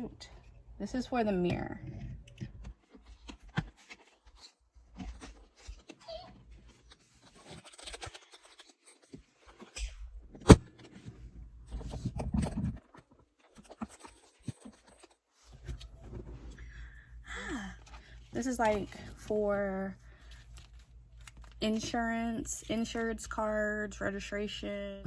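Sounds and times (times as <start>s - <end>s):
plastic clicks and rustles: 1.9s - 16.5s, 20.2s - 21.9s.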